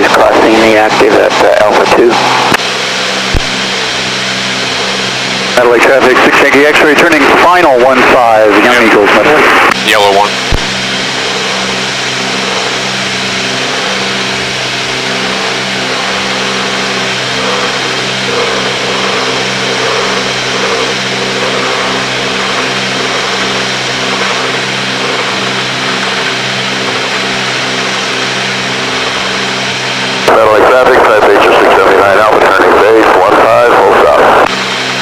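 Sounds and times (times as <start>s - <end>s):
propeller plane engines droning: 0.0s - 35.0s.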